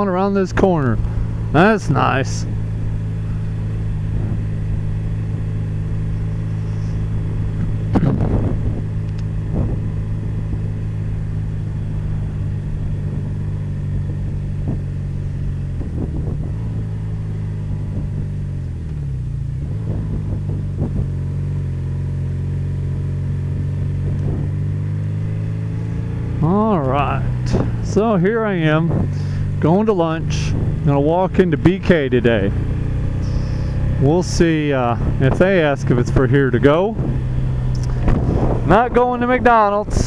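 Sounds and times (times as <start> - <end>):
motorcycle engine running: 0.0 - 40.0
wind noise: 4.0 - 18.4, 19.5 - 21.3, 23.6 - 26.2, 26.9 - 29.5, 30.2 - 30.8, 34.7 - 40.0.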